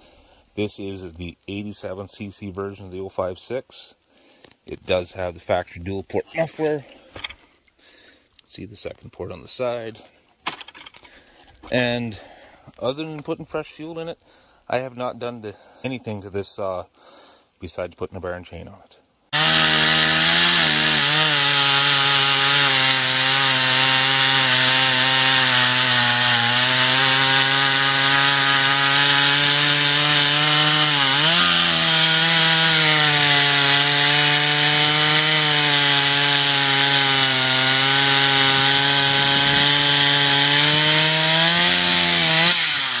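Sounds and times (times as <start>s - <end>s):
chainsaw running at high revs: 19.3s - 43.0s.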